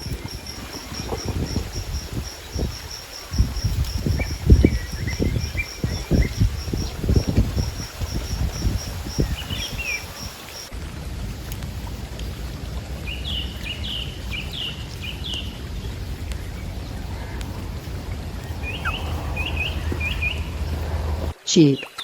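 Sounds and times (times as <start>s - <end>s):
insect chirping: 0.0s - 10.7s, 11.8s - 22.0s
faint bird calls: 16.1s - 20.9s.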